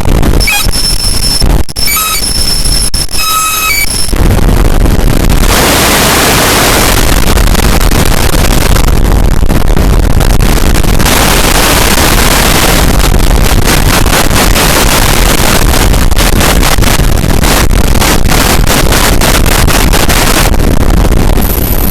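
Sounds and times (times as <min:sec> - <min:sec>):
distorted electronic noise: 0:00.0 - 0:21.9
high whistling feedback tones: 0:00.4 - 0:04.2.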